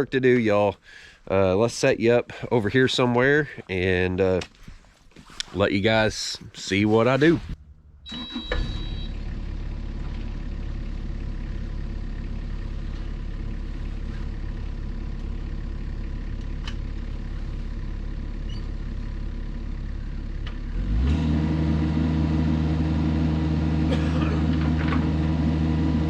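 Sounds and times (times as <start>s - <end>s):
engine throttling up: 5.5s - 26.0s
diesel engine idling: 5.9s - 26.0s.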